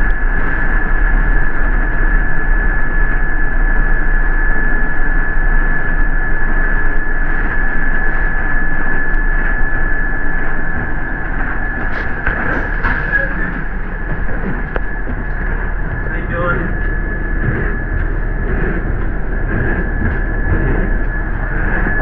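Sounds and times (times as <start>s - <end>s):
bus engine and road rumble: 0.0s - 22.0s
high whine: 0.0s - 22.0s.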